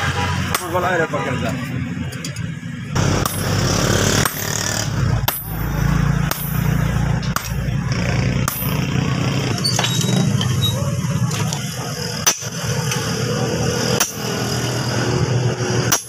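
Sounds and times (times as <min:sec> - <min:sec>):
hammer striking metal: 0:00.4 - 0:00.9, 0:02.2 - 0:11.4, 0:12.1 - 0:14.8, 0:15.6 - 0:16.0
low machine drone: 0:02.6 - 0:16.0.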